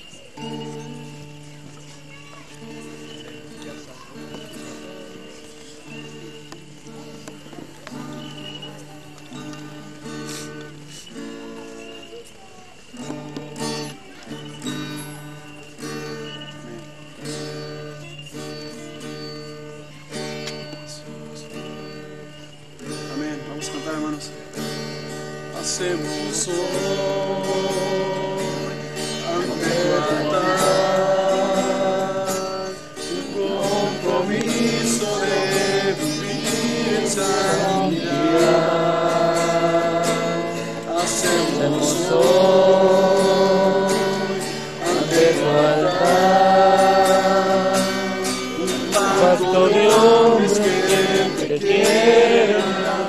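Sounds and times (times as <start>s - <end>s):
acoustic guitar strumming: 0.0s - 53.0s
group singing worship song: 25.6s - 53.0s.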